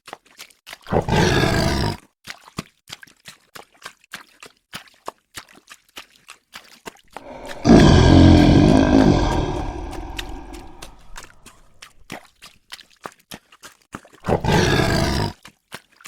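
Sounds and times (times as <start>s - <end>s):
big cat roaring: 7.2s - 11.4s, 14.4s - 15.3s.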